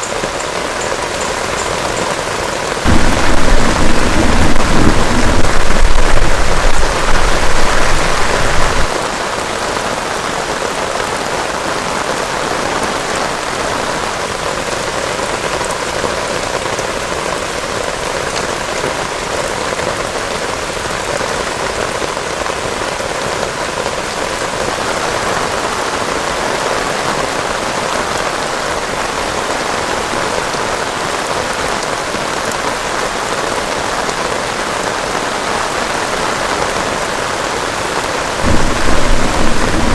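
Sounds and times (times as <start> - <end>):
heavy rain pouring: 0.0 - 39.9
thunder rumbling: 2.8 - 9.1, 38.4 - 39.9.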